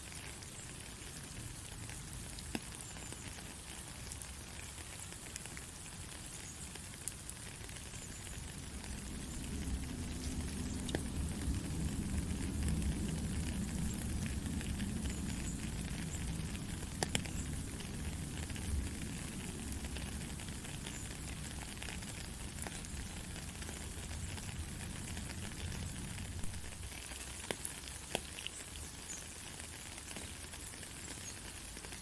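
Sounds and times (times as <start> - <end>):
raindrop clicks: 0.1 - 32.0
heavy rain hissing: 7.2 - 29.4.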